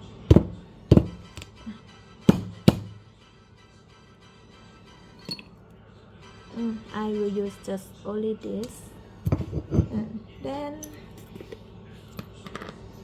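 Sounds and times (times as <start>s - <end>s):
soft background music: 0.0s - 13.0s
tool knocking on nutmeg: 0.3s - 1.5s, 2.3s - 3.0s.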